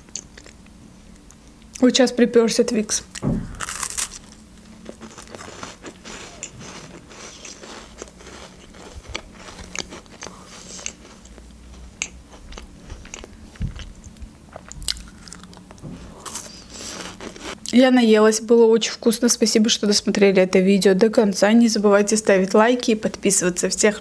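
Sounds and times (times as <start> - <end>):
crunching crisp cracker: 3.6 - 17.7.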